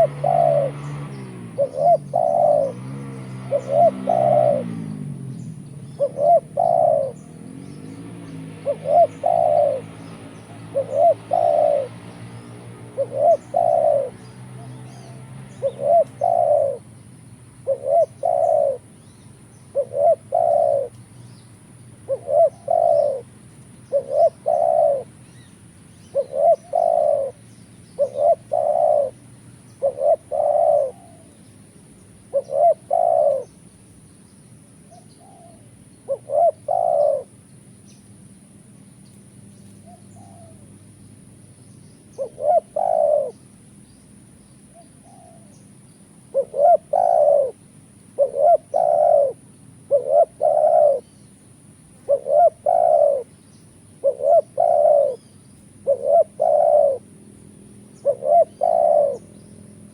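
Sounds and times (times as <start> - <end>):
doves cooing: 0.0 - 25.4, 26.0 - 33.8, 34.8 - 37.7, 39.6 - 40.8, 42.0 - 43.8, 44.6 - 59.9.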